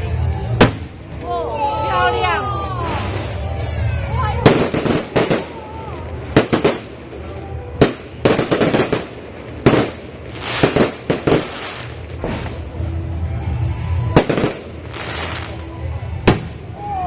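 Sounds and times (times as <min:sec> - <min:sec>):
fireworks bangs: 0:00.5 - 0:01.2, 0:04.3 - 0:17.0.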